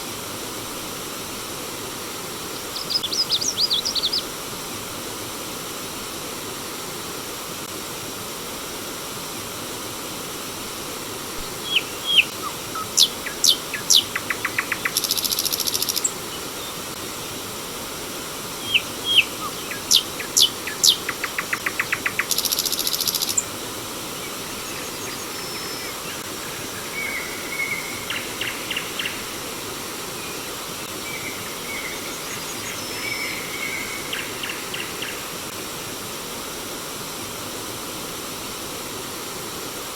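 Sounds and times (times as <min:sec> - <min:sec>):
stream water flowing: 0:00.0 - 0:39.9
faint bird chirps: 0:02.6 - 0:04.3, 0:11.4 - 0:16.7, 0:18.6 - 0:23.5
songbird singing: 0:02.6 - 0:04.3, 0:11.4 - 0:16.8, 0:18.6 - 0:23.5, 0:24.1 - 0:29.4, 0:30.1 - 0:35.3.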